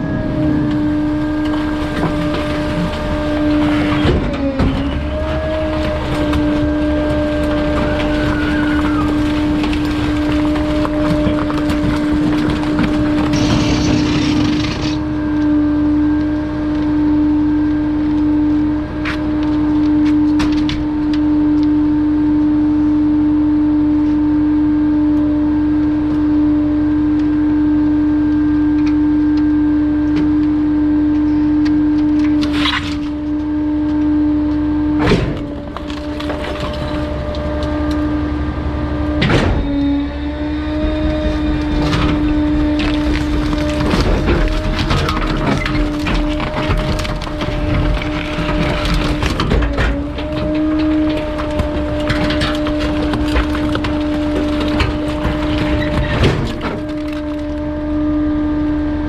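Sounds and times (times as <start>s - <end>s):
hydraulic system humming: 23.9s - 59.0s
low rumble: 33.0s - 59.0s.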